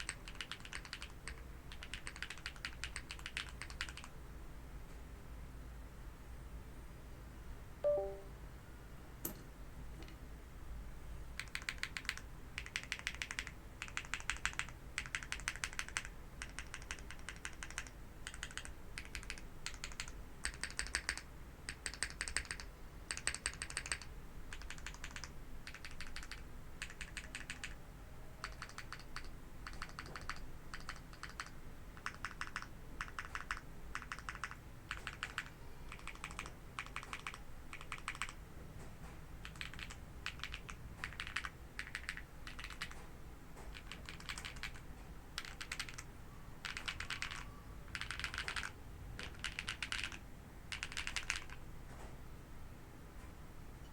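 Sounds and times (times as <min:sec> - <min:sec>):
mechanical keyboard typing: 0:00.0 - 0:04.2, 0:11.4 - 0:27.8, 0:28.4 - 0:38.4, 0:39.4 - 0:43.0, 0:43.7 - 0:51.6.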